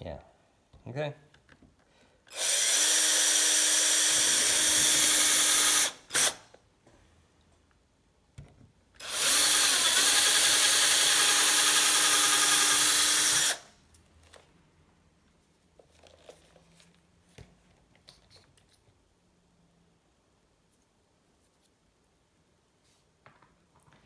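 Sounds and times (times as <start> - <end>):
power drill drilling metal: 2.3 - 6.4, 9.0 - 13.7.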